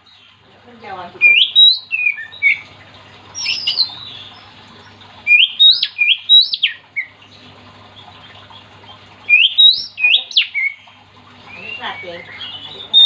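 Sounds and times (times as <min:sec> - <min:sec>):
bird singing whistled notes: 0:01.2 - 0:02.6, 0:03.4 - 0:04.0, 0:05.3 - 0:07.1, 0:09.3 - 0:10.8, 0:11.5 - 0:13.0.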